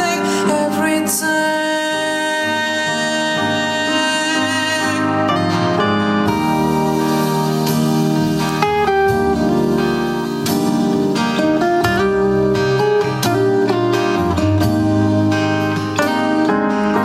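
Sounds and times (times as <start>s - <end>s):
person singing: 0.0s - 8.5s
guitar playing: 0.0s - 17.0s.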